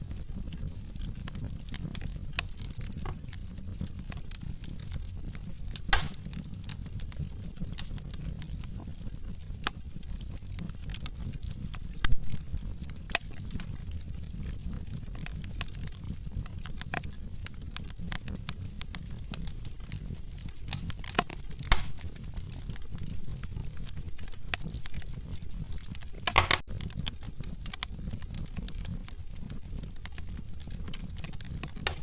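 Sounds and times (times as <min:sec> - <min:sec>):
low rumble of flames: 0:00.0 - 0:32.0
wood fire crackling and popping: 0:00.0 - 0:32.0.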